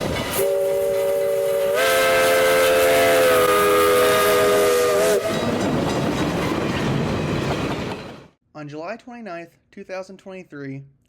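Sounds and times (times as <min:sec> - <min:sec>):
train rolling: 0:00.0 - 0:08.4
steam locomotive whistle: 0:00.3 - 0:05.7.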